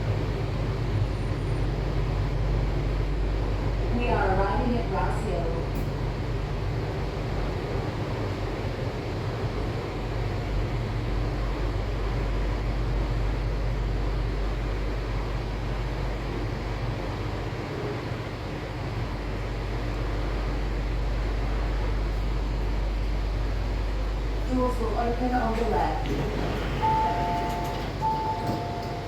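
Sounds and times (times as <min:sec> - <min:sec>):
train wheels rumbling: 0:18.5 - 0:29.0.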